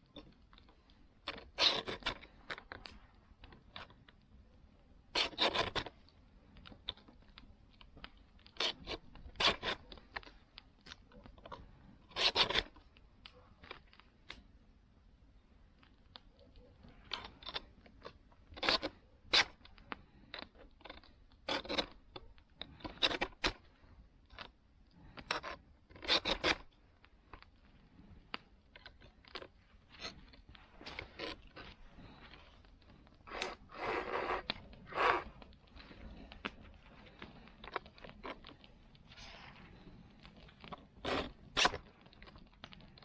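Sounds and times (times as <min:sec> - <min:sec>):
file scraping saw teeth: 0:01.6 - 0:02.2, 0:05.2 - 0:05.9, 0:08.6 - 0:09.9, 0:12.1 - 0:12.7, 0:21.5 - 0:21.9, 0:25.4 - 0:26.6, 0:33.3 - 0:35.3, 0:41.0 - 0:41.8.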